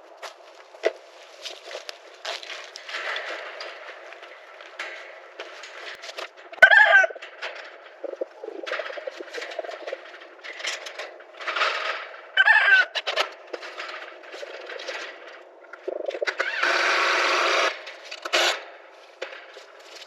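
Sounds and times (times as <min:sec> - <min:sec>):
chickens clucking and squawking: 0:06.5 - 0:07.4, 0:08.0 - 0:10.4, 0:12.4 - 0:13.2, 0:15.8 - 0:16.8.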